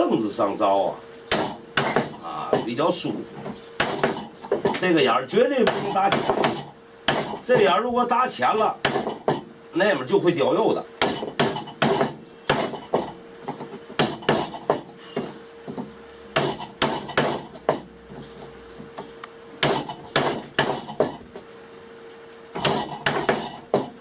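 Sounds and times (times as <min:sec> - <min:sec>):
hammer striking chisel into wood: 0:01.3 - 0:02.7, 0:03.8 - 0:04.8, 0:05.6 - 0:07.7, 0:08.8 - 0:09.4, 0:11.0 - 0:13.1, 0:14.0 - 0:14.9, 0:16.4 - 0:17.9, 0:19.6 - 0:21.1, 0:22.6 - 0:23.9.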